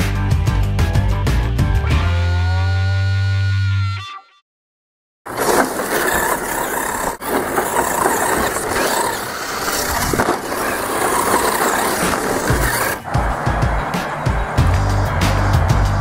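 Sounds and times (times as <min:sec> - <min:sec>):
rc truck driving on dirt: 0:05.3 - 0:16.0.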